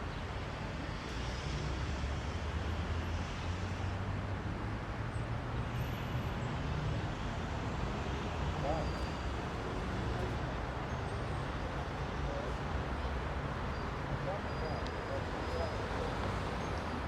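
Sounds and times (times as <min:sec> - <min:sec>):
car and bus engines rumbling: 0:00.0 - 0:17.0.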